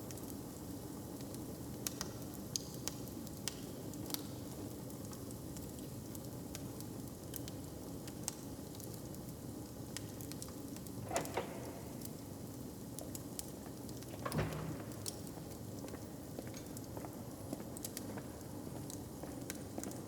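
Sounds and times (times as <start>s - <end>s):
wood fire crackling: 0.1s - 20.0s.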